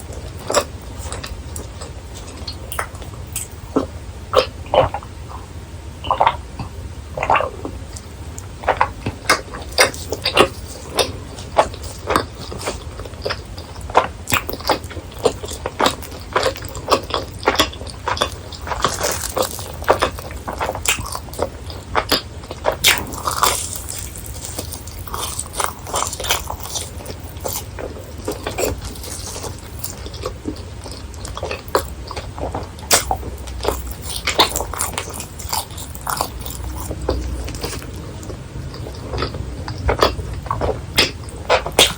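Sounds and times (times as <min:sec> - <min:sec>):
crunchy snack chewing: 0:08.6 - 0:41.9.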